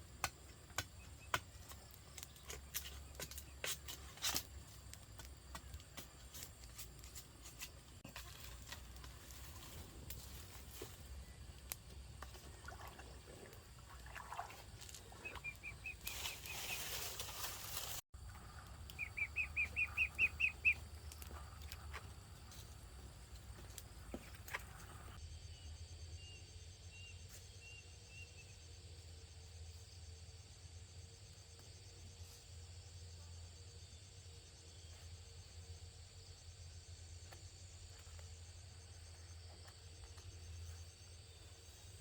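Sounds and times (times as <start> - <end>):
bird calling high repeated notes: 18.9 - 20.8.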